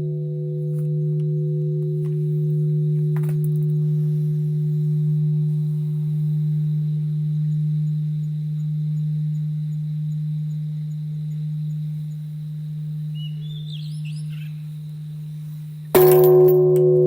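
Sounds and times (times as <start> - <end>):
temple bell ringing: 0.0 - 7.4, 16.0 - 17.0
short bird chirp: 13.2 - 14.6.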